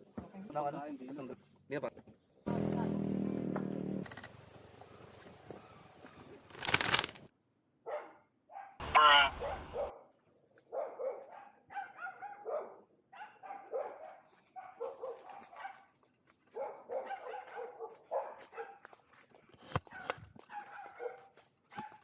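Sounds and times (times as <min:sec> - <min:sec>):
dog barking: 0:07.8 - 0:10.1, 0:10.7 - 0:19.2, 0:19.8 - 0:22.0.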